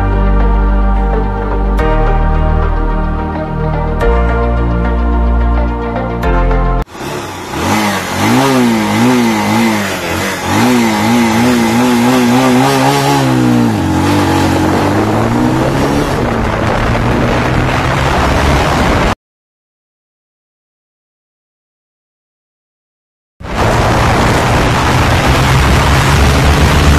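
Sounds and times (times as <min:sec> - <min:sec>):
motorcycle engine accelerating: 0:06.8 - 0:19.2, 0:23.4 - 0:26.9
steady rushing noise: 0:06.9 - 0:19.2, 0:23.4 - 0:26.9.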